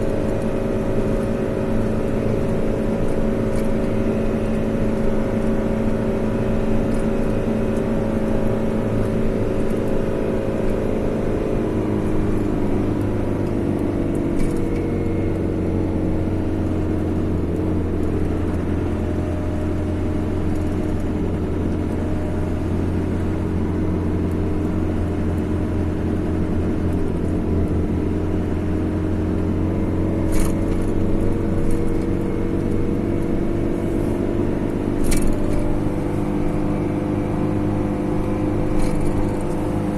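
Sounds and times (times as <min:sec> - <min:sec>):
car engine and tyre drone: 0:00.0 - 0:39.9.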